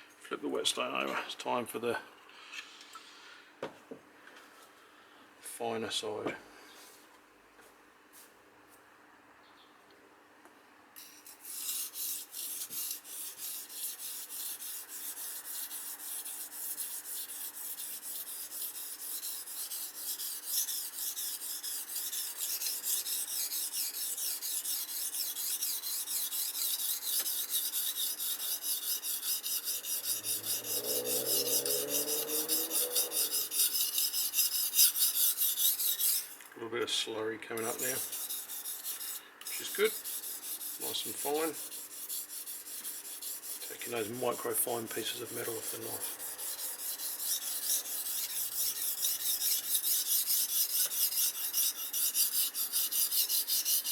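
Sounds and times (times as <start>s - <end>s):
knife scraping on whetstone: 11.0s - 36.5s, 37.6s - 53.9s.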